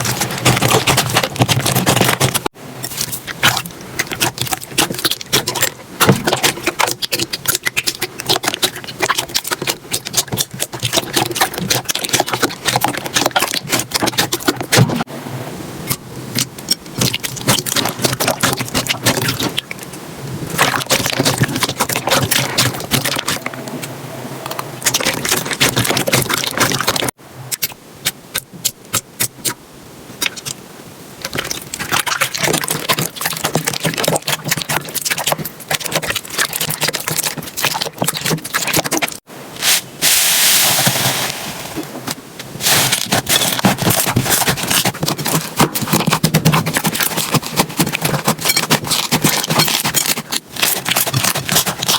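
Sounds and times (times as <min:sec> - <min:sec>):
slime crackling and popping: 0:00.0 - 0:15.0
squishy scraping hiss: 0:31.2 - 0:51.9.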